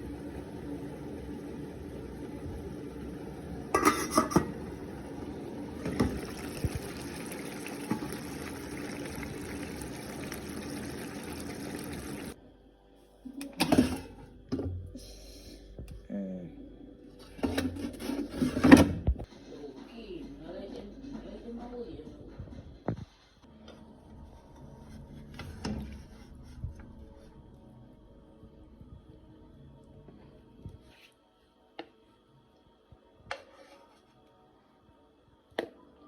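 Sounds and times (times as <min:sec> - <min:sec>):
water running: 0:00.0 - 0:12.4
dishes and pans clattering: 0:03.7 - 0:04.8.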